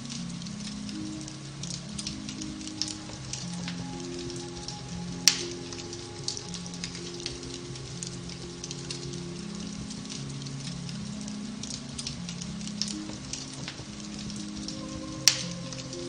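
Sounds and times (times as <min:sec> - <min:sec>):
fire crackling and popping: 0:00.0 - 0:16.0
soft slow piano music: 0:00.0 - 0:16.0.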